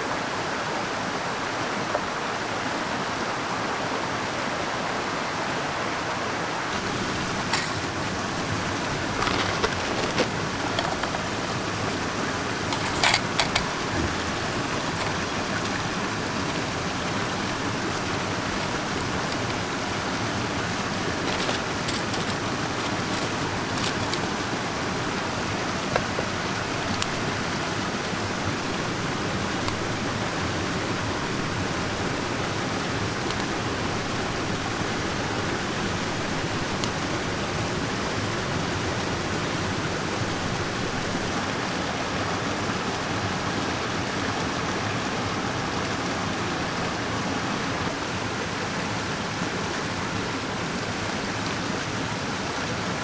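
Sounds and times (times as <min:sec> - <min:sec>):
stream rushing: 0:00.0 - 0:53.0
small clicks and knocks: 0:06.8 - 0:24.6, 0:25.9 - 0:27.4.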